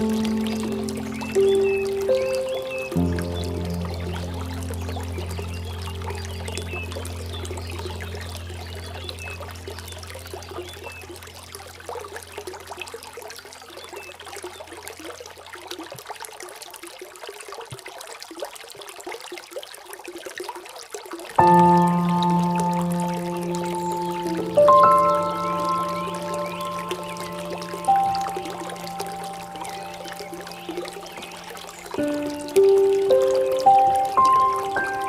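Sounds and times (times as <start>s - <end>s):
low sustained music tones: 0.0s - 13.0s, 21.4s - 35.0s
water trickling and splashing: 0.0s - 35.0s.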